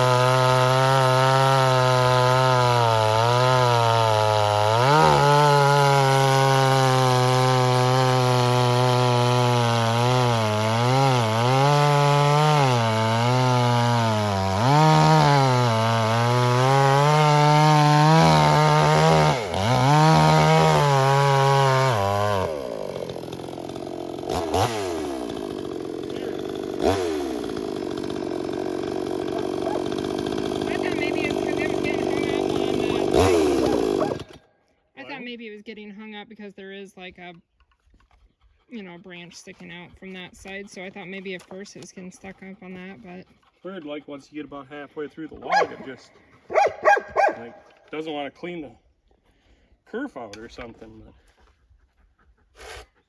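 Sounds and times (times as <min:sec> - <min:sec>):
chainsaw cutting through a log: 0:00.0 - 0:35.2, 0:45.2 - 0:48.2, 0:52.6 - 0:53.0.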